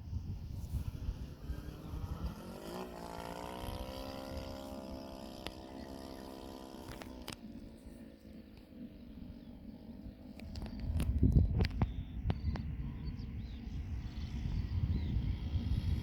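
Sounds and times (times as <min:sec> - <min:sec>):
model airplane engine running: 0:00.0 - 0:16.0.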